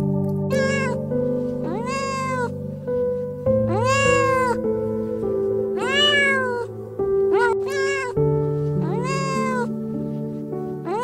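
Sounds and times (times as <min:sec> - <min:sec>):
background music with sustained notes: 0:00.0 - 0:11.0
meow-like animal calls: 0:00.5 - 0:01.0, 0:01.6 - 0:02.6, 0:03.6 - 0:04.7, 0:05.8 - 0:06.7, 0:07.3 - 0:08.2, 0:08.8 - 0:09.8.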